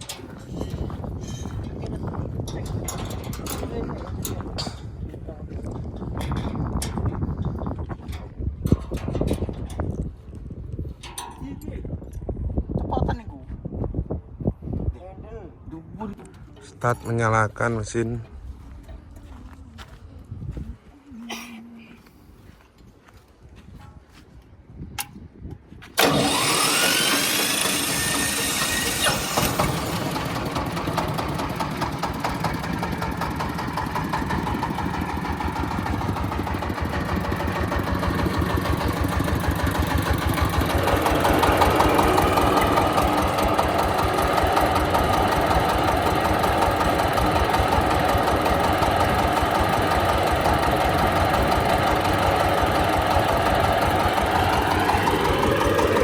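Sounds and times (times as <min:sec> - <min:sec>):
machine whine spinning up: 0:26.0 - 0:30.2, 0:50.4 - 0:56.0
starter click: 0:26.0 - 0:34.4
diesel engine starting and running: 0:26.0 - 0:56.0.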